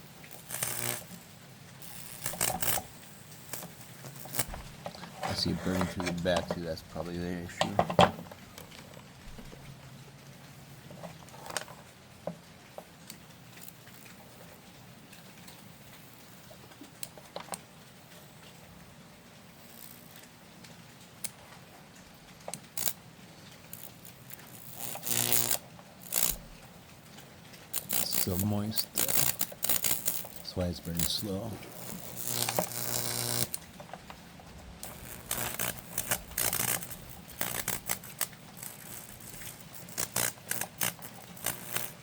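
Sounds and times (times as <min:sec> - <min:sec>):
electrical buzzing bursts: 0:00.0 - 0:01.2, 0:01.8 - 0:05.5, 0:23.8 - 0:26.6, 0:27.7 - 0:42.0
sharp electrical crackles: 0:00.0 - 0:01.2, 0:01.8 - 0:05.5, 0:19.6 - 0:20.4, 0:23.7 - 0:26.8, 0:27.7 - 0:42.0
low electrical hum: 0:00.0 - 0:42.0.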